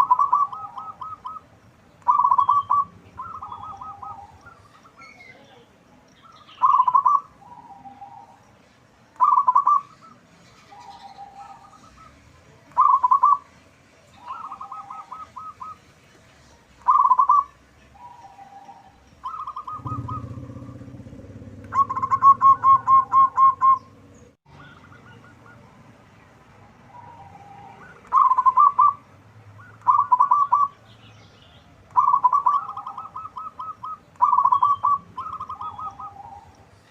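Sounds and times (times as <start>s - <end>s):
doves cooing: 0.0s - 5.1s, 6.2s - 8.4s, 9.2s - 13.5s, 14.2s - 15.8s, 16.6s - 25.8s, 26.5s - 30.8s, 31.7s - 36.9s
low rumble: 19.7s - 24.4s.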